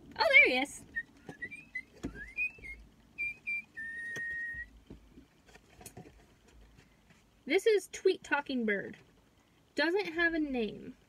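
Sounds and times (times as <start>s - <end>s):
toy bird chirping electronically: 1.0s - 4.3s.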